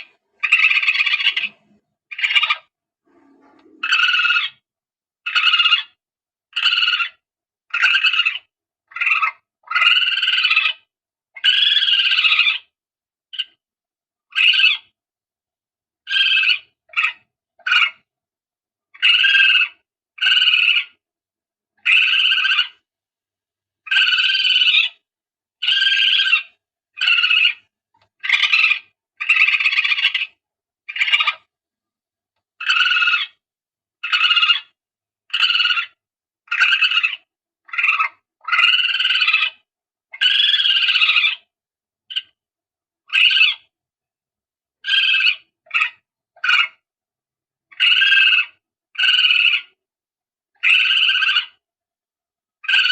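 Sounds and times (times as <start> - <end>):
palm civet calls: 0.0 - 4.6, 5.3 - 12.7, 16.1 - 18.1, 19.0 - 21.0, 21.8 - 22.8, 23.9 - 25.0, 25.6 - 31.5, 32.6 - 33.4, 34.0 - 41.5, 43.1 - 43.7, 44.8 - 46.8, 47.7 - 49.8, 50.6 - 51.6.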